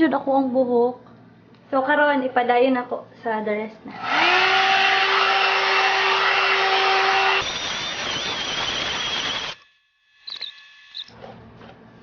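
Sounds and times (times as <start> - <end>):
hair dryer running: 3.9 - 9.6.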